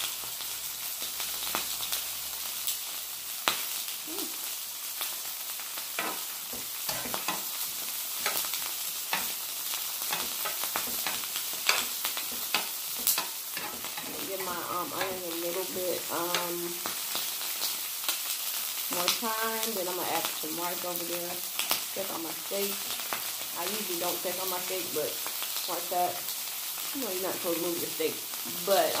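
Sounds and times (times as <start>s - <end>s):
steak and onions sizzling: 0.0s - 29.0s
metal spatula scraping griddle: 6.0s - 15.2s.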